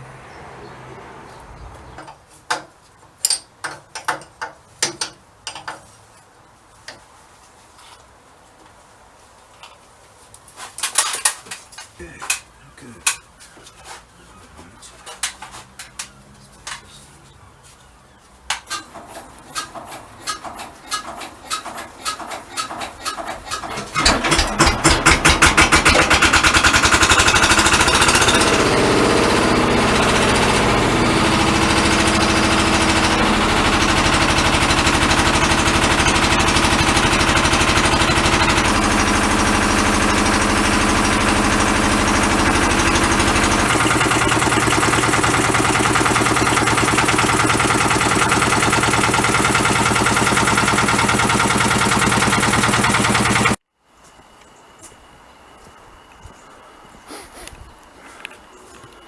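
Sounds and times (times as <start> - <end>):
diesel engine hand-cranked and running: 18.5 - 53.6.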